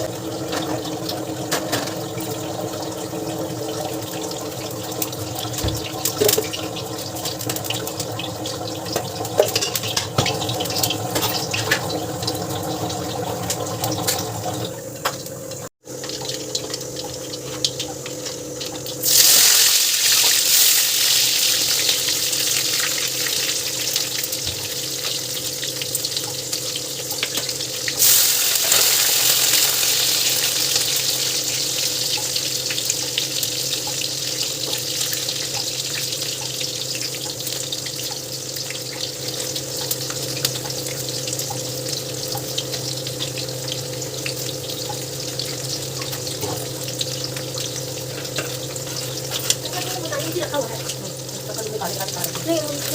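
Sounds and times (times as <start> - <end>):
tap water running into a sink: 0.0 - 52.9.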